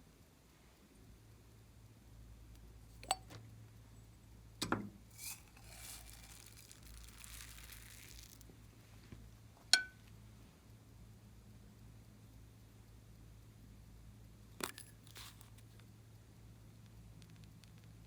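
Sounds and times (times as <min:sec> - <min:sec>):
small objects clicking: 0:05.1 - 0:08.5, 0:14.6 - 0:15.8
soft crinkling: 0:05.1 - 0:09.3, 0:14.7 - 0:15.9.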